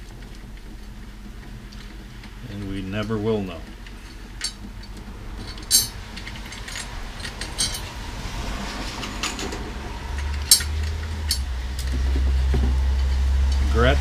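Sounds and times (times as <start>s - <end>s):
low steady rumble: 0.0s - 14.0s
metal drum hardware clinking: 1.7s - 8.0s.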